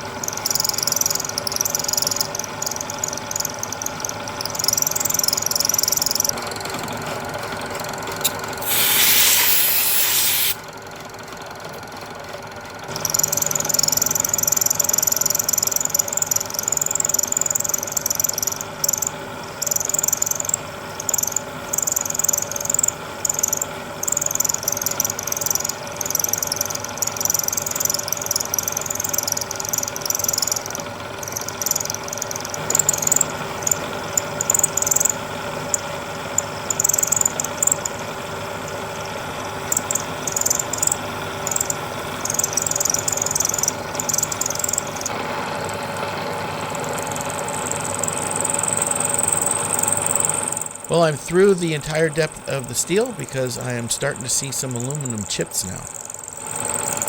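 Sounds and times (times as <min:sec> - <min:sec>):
motor hum: 0:00.0 - 0:57.0
end mill cutting steel: 0:08.2 - 0:10.6.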